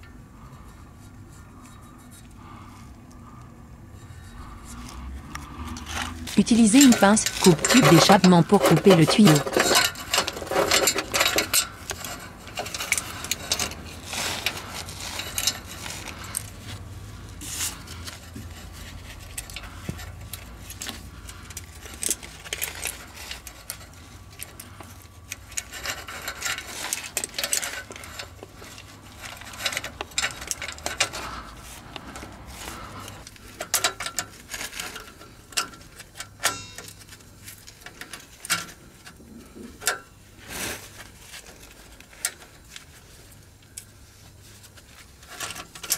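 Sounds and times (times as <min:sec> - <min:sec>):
metal pipe cutter clicking and scraping: 0:04.0 - 0:16.7, 0:17.9 - 0:32.3, 0:33.0 - 0:39.2.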